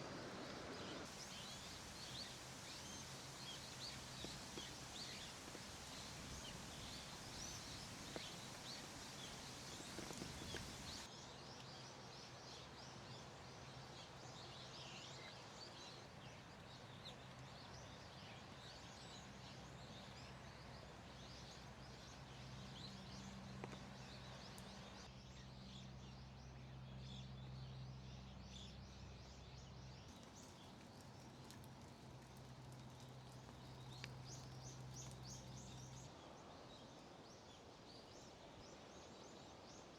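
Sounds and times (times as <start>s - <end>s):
small birds chirping: 0.0s - 11.1s, 16.9s - 36.2s.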